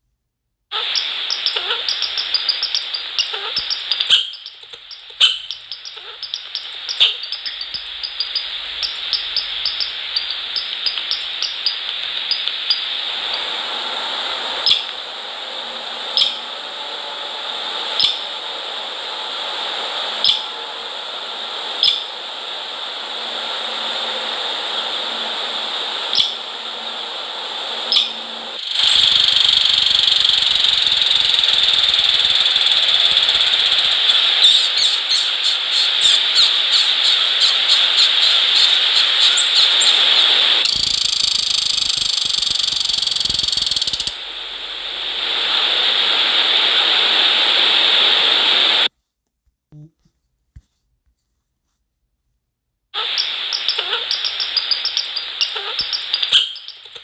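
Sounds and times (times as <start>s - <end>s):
steady hiss: 0.7s - 48.9s, 53.0s - 57.0s
steady rushing noise: 6.4s - 48.9s.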